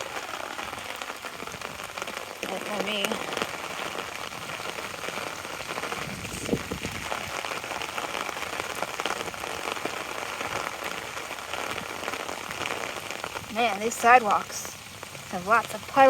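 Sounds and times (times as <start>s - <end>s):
rain on an umbrella: 0.0s - 16.0s.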